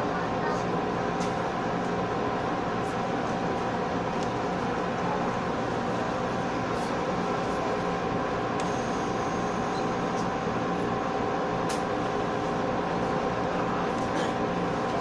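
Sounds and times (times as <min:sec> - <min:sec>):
train interior hum and rumble: 0:00.0 - 0:15.0.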